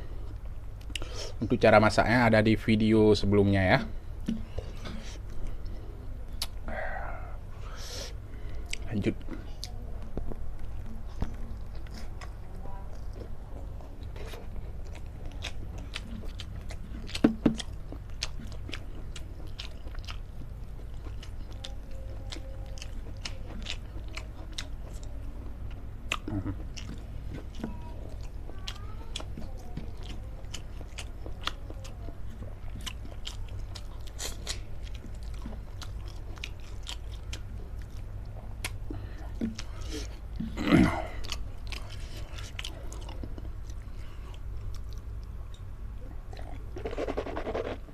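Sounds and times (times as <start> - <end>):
low hum: 3.7 - 24.0
person chewing crunchy food: 3.8 - 47.9.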